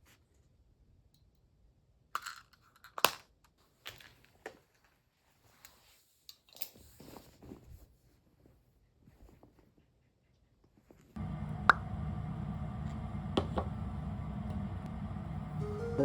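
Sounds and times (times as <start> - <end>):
crinkly rustles: 6.7 - 9.8.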